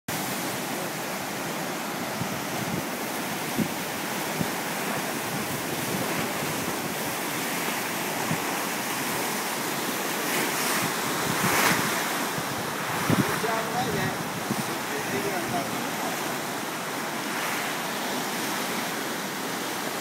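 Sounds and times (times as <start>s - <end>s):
river rushing: 0.1s - 20.0s
wind knocking on microphone: 2.1s - 7.0s, 8.2s - 8.6s, 10.3s - 15.8s.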